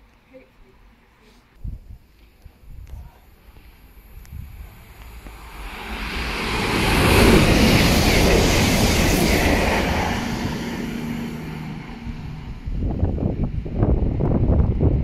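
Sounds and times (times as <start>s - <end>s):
train passing at speed: 3.4s - 15.0s.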